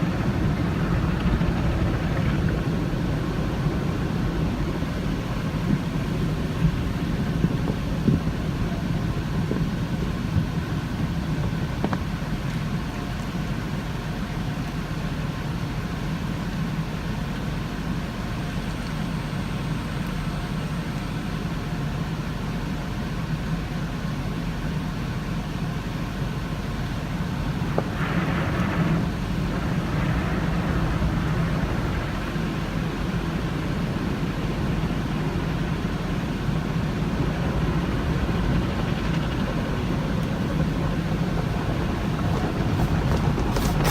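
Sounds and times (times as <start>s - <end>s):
low hum: 0.0s - 14.4s, 26.6s - 43.9s
rushing hiss of car wash: 2.6s - 43.9s.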